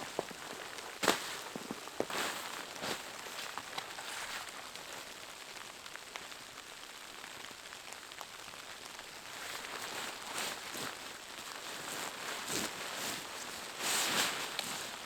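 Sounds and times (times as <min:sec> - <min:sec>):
crunching steps in snow: 0:00.0 - 0:05.1, 0:09.2 - 0:15.0
hiss of falling snow: 0:00.1 - 0:15.0.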